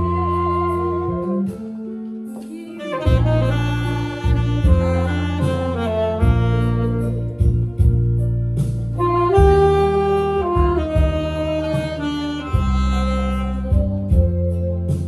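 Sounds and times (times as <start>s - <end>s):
steady bass line: 0.0s - 1.8s, 3.0s - 15.0s
saxophone slow melody: 0.0s - 15.0s.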